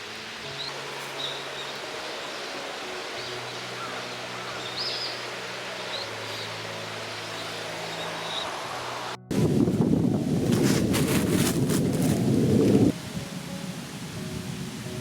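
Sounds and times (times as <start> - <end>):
rushing hiss: 0.0 - 9.6.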